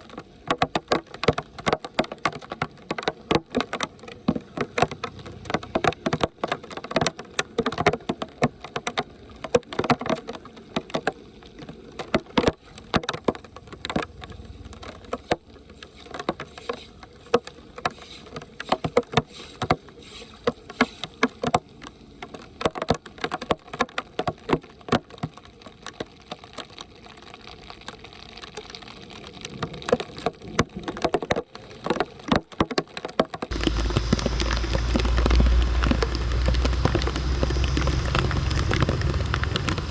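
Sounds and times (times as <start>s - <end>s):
shallow water splashing: 33.5s - 39.9s
water rushing: 33.5s - 39.9s.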